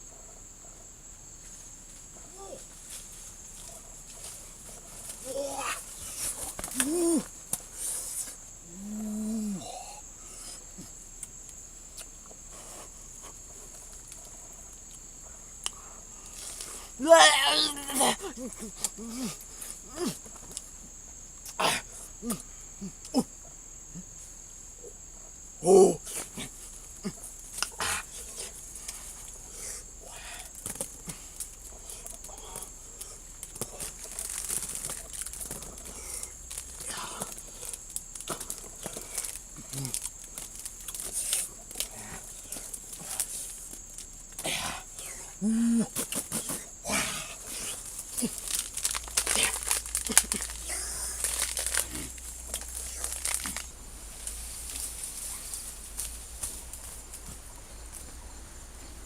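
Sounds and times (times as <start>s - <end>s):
insects droning: 0.0s - 59.0s
faint ticks: 13.3s - 16.7s.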